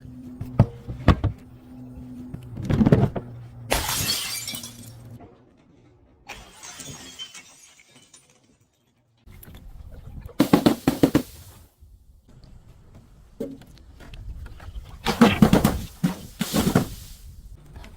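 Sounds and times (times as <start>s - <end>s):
glass bottle breaking: 3.7s - 5.1s, 6.3s - 8.9s
glass shattering: 3.7s - 5.1s, 6.3s - 9.0s.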